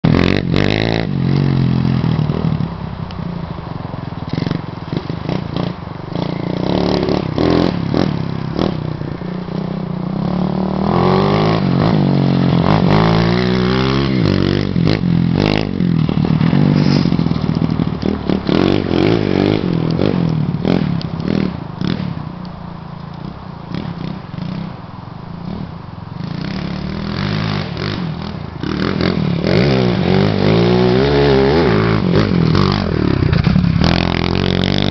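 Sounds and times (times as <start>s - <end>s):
dirt bike engine revving: 4.3s - 22.2s, 25.4s - 34.9s.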